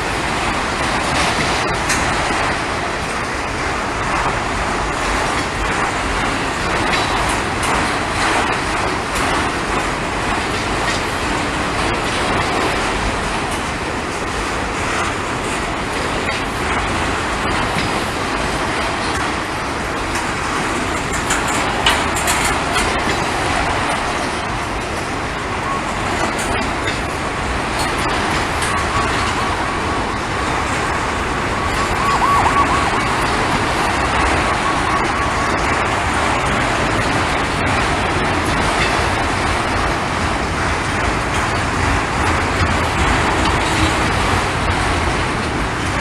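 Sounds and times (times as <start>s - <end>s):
freight train wheels rumbling: 0.0s - 46.0s.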